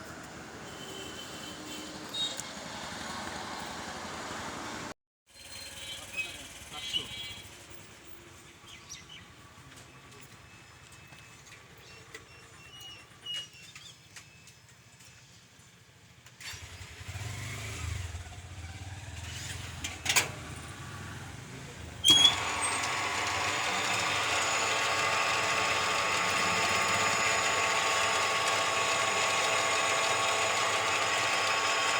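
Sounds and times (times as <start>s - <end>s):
fuel pump motor whining: 22.0s - 31.9s.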